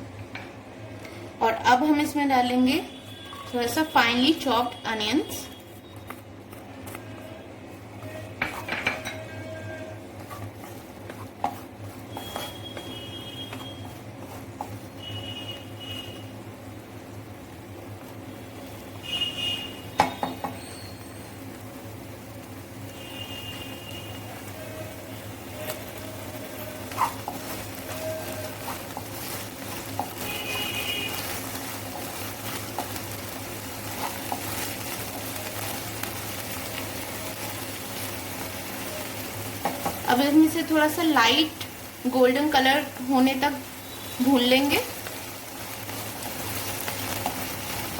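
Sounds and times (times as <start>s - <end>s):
onions sizzling in hot oil: 0.0s - 47.9s
metal spoon scraping a pan: 8.0s - 14.8s, 26.7s - 30.3s.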